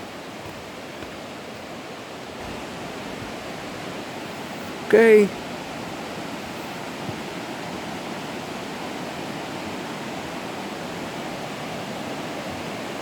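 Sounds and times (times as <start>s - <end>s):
creek water flowing over rocks: 0.0s - 13.0s.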